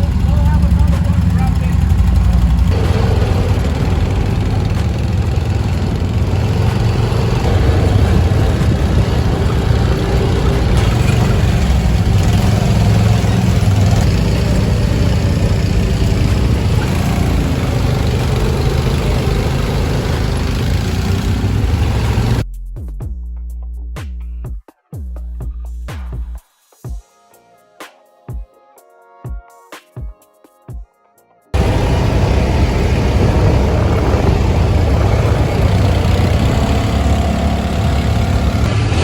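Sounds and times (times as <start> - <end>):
engine running with low rumble: 0.0 - 22.4, 31.6 - 39.0.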